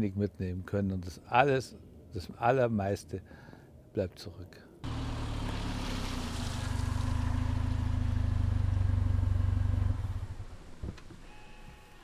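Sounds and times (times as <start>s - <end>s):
car engine running: 4.8s - 10.9s.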